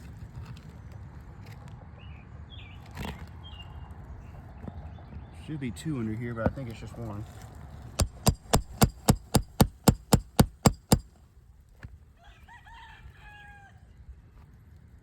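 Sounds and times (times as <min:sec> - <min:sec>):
hammer striking metal tool: 0:08.0 - 0:11.1
rooster crowing: 0:12.2 - 0:13.8.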